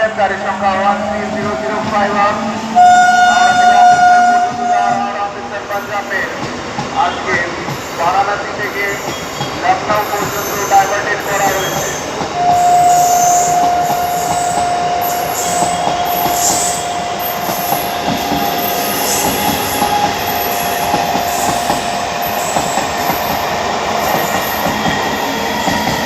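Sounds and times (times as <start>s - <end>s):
train rumbling: 0.0s - 26.0s
electric train horn: 0.7s - 5.2s, 12.4s - 18.7s.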